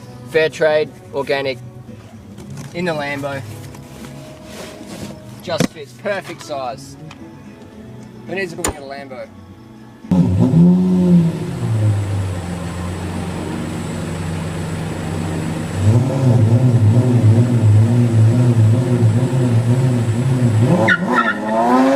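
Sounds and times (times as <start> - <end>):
engine humming and throbbing: 10.0 - 21.9.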